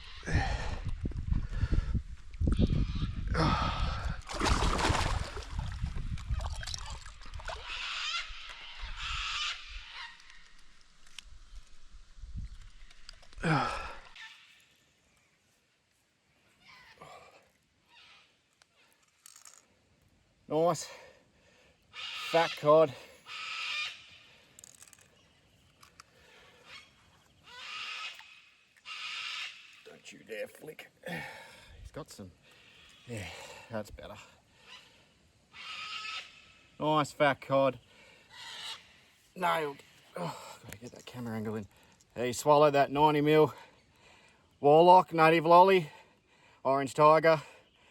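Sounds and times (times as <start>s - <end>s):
harsh rasping bird calls: 2.5s - 3.7s, 7.2s - 10.8s, 13.5s - 14.9s, 17.8s - 19.1s, 21.8s - 30.2s, 32.5s - 33.5s, 34.5s - 37.0s, 37.8s - 42.0s
loud splashing: 4.3s - 5.8s.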